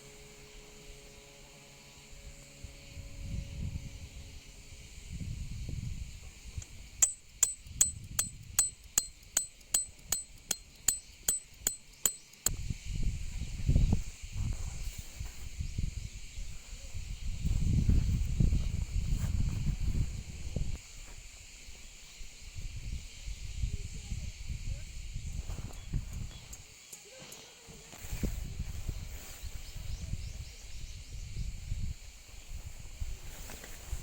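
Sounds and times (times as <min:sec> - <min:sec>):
wind rumbling on microphone: 0:02.2 - 0:08.9, 0:12.4 - 0:26.7, 0:28.0 - 0:34.0
ringing metallic taps: 0:06.6 - 0:12.5.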